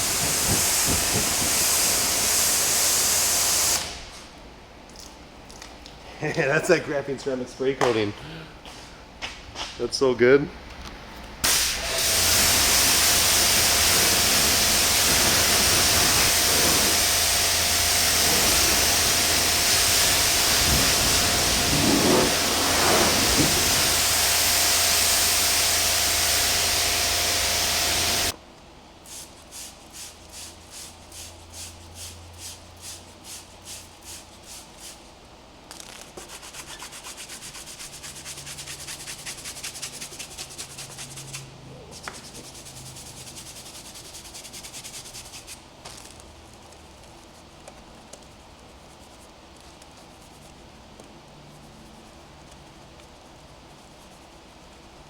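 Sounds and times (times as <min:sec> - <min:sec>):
pressure washer spraying water: 0:00.0 - 0:04.0, 0:11.4 - 0:28.4
wash mitt rubbing on paint: 0:13.4 - 0:17.4, 0:18.0 - 0:24.0, 0:35.8 - 0:55.0.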